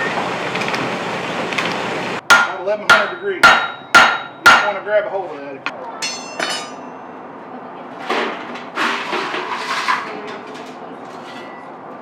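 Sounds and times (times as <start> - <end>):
forge tools scraping and clattering: 6.0 - 6.9, 8.0 - 11.7.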